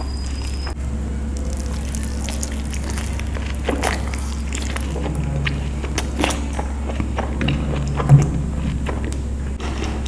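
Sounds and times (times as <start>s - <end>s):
low hum: 0.0s - 10.0s
wet chewing and lip smacks: 1.4s - 9.2s.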